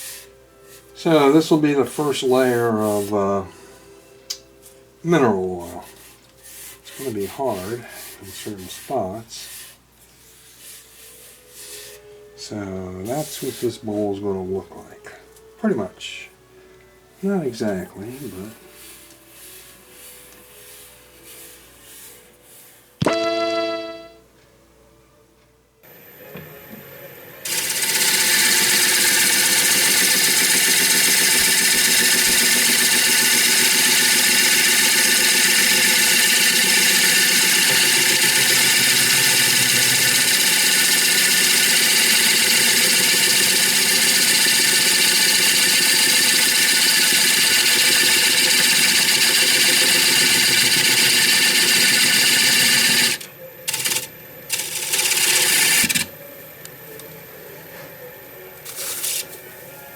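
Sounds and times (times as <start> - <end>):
electric power tool whining: 27.5 - 56.1.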